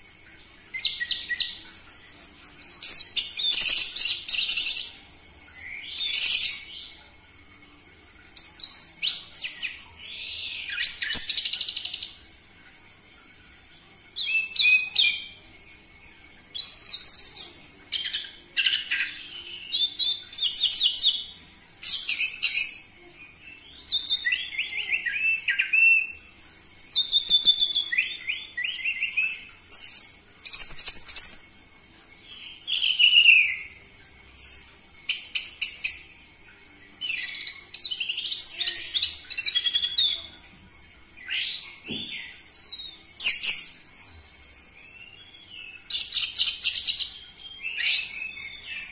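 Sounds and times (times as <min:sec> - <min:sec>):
bird singing: 0:41.2 - 0:48.9.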